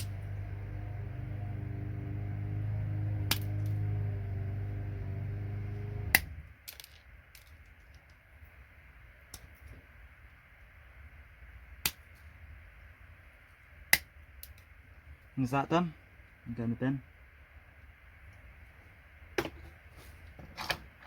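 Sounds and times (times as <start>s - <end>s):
machine hum: 0.0s - 6.5s.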